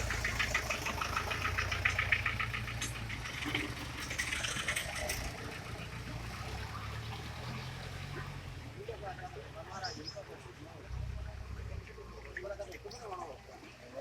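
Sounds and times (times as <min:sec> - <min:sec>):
engine humming with clatter: 0:00.0 - 0:14.0.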